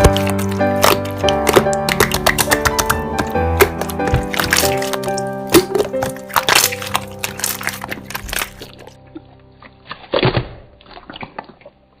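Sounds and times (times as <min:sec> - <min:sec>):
slime crackling and popping: 0:00.0 - 0:09.0
background music with held tones: 0:00.0 - 0:12.0.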